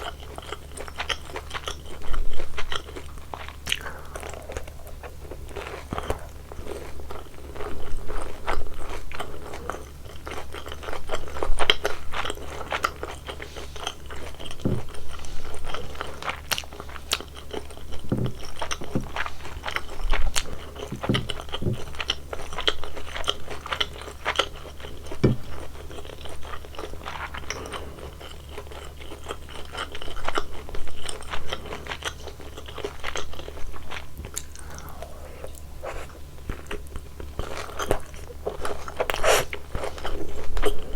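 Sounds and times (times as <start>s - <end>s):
chewing crispy fried food: 0.0s - 40.9s
steady low hum: 0.0s - 40.9s.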